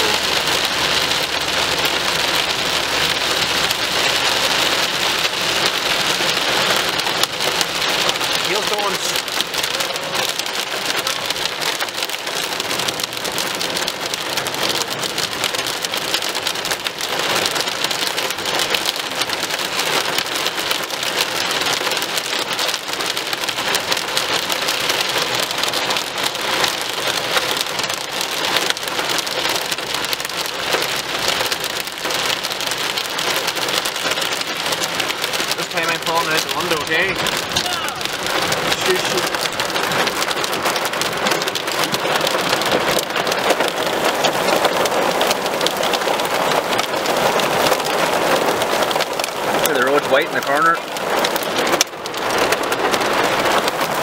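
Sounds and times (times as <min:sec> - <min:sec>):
heavy rain on car windscreen: 0:00.0 - 0:54.0.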